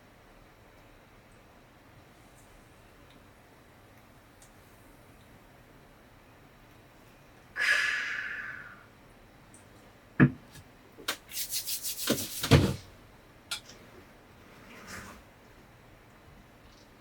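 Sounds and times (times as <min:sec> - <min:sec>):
heavy thumps: 0:10.2 - 0:10.6
rubbing and scraping strokes: 0:11.1 - 0:12.8.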